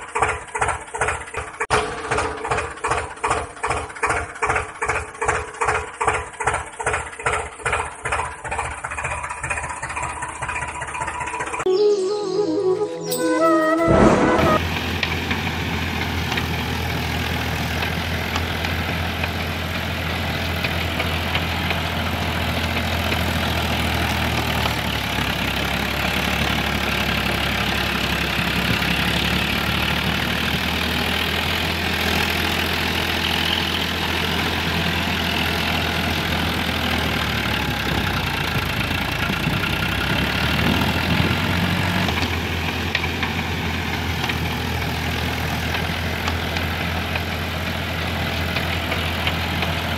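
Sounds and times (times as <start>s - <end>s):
engine idling with rattle: 0.0s - 11.7s, 14.6s - 49.9s.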